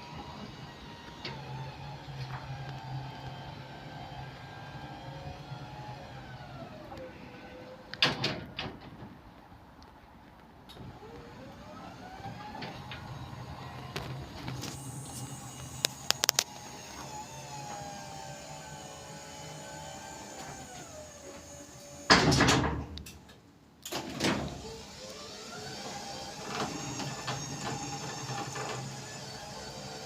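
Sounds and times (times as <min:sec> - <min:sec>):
garage door motor whine: 0:00.0 - 0:08.3, 0:10.8 - 0:22.7, 0:23.9 - 0:30.0
garage door clunk and rumble: 0:08.0 - 0:09.2, 0:20.2 - 0:23.3.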